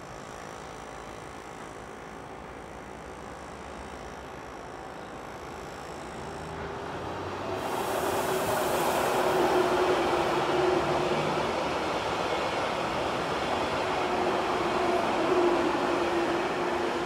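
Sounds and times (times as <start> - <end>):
train passing at speed: 6.2 - 17.0
wheels rushing on rail: 6.2 - 17.0.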